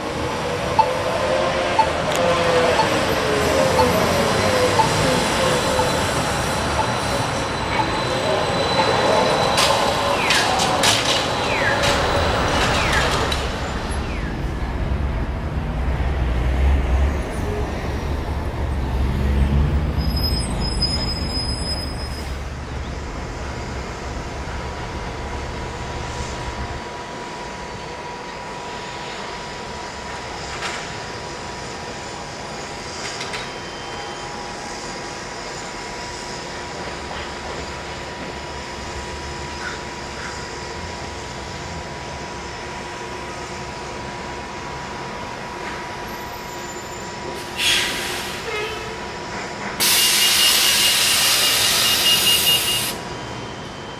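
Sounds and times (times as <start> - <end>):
heavy bus engine rumble: 0.0 - 27.9
steady street traffic: 0.0 - 53.9.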